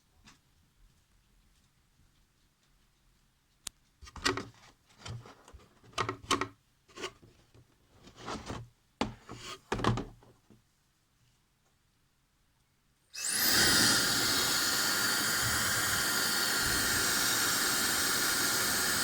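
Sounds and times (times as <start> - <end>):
rubbing and scraping handling: 6.9 - 9.8.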